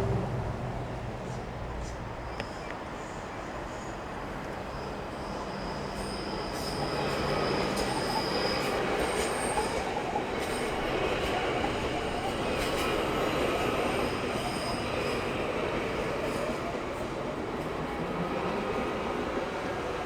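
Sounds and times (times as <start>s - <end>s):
train wheels rumbling: 0.0s - 3.1s.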